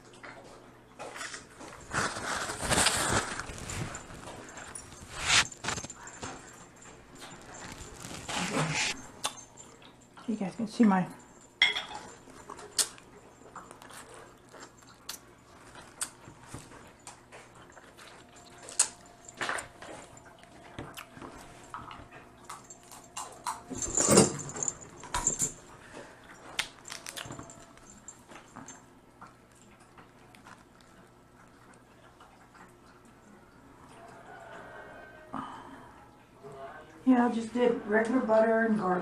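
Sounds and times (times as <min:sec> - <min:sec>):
chewing: 0:00.0 - 0:10.3, 0:11.2 - 0:23.8, 0:24.7 - 0:34.9
crab shell cracking: 0:26.6 - 0:27.3.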